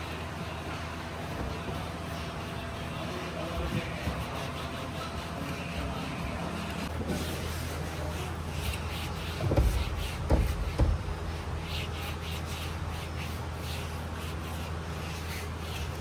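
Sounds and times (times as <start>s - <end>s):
low mechanical hum: 0.0s - 16.0s
dull thumps: 9.4s - 11.3s.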